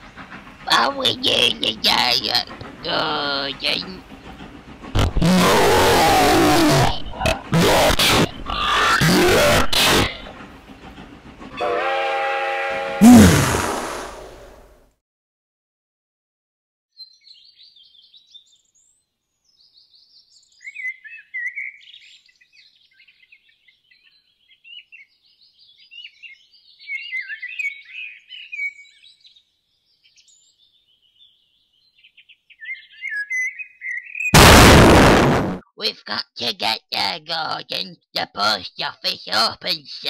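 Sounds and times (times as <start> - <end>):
birds chirping and trilling: 6.9 - 7.5, 17.0 - 34.3.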